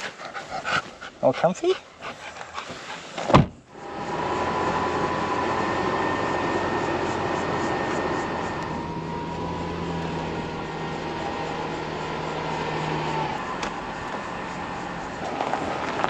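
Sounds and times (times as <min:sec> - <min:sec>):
low hum: 0:03.6 - 0:16.0
car engine running: 0:03.7 - 0:16.0.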